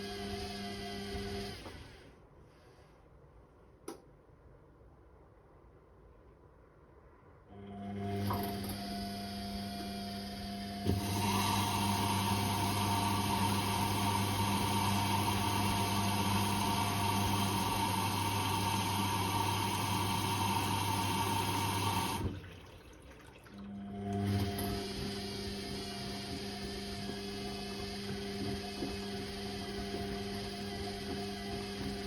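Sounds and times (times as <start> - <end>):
water rushing through washing machine: 0.0 - 2.0, 7.6 - 32.0.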